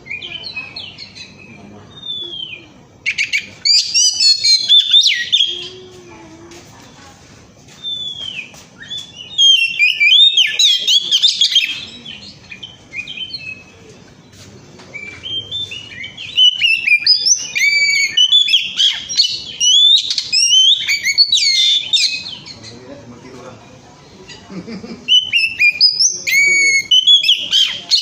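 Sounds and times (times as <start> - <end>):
bird singing whistles and chirps: 0.0 - 5.7, 7.8 - 13.7, 14.9 - 22.6, 25.1 - 28.0.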